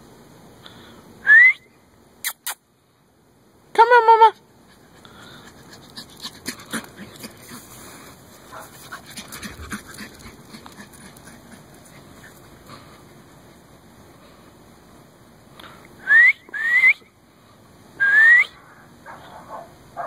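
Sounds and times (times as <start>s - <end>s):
dog panting: 4.6s - 13.9s.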